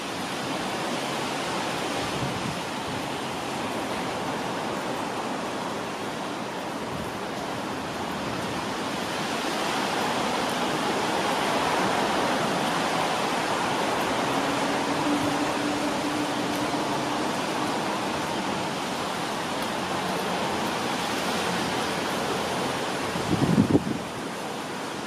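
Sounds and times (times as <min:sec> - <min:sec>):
rain hissing: 0:00.0 - 0:25.0
electric train approaching: 0:10.9 - 0:23.0.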